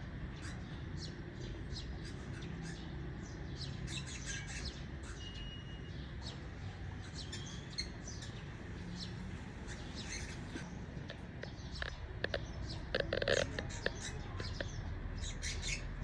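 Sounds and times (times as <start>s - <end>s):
cockatiels chirping: 7.0s - 16.0s.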